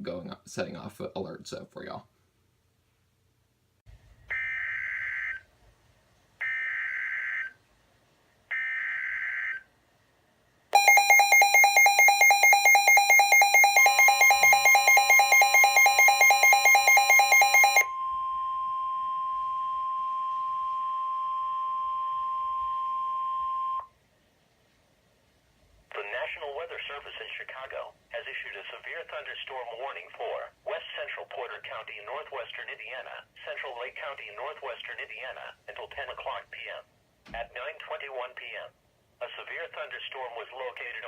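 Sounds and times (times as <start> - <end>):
rapidly pulsing alarm: 4.3 - 5.4, 10.8 - 23.8
steady warning alarm tone: 10.8 - 23.9.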